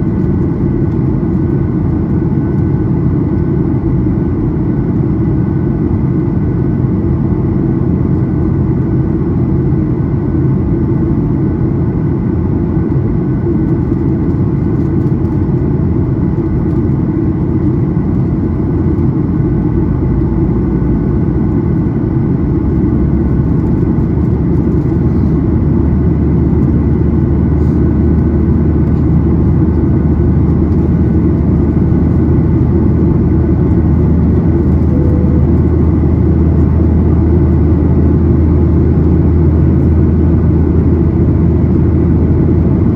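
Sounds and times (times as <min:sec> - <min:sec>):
jet engine and airflow noise: 0:00.0 - 0:42.9
faint steady tones: 0:34.6 - 0:37.1.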